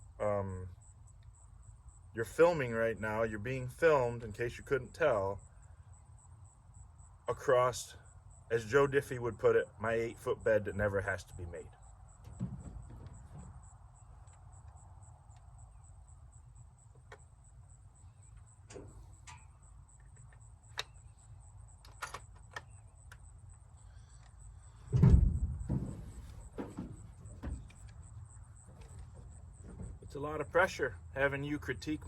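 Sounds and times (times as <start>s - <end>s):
rolling rumble: 10.1s - 14.4s, 23.9s - 32.0s
rifle handling clicks and knocks: 21.8s - 23.2s.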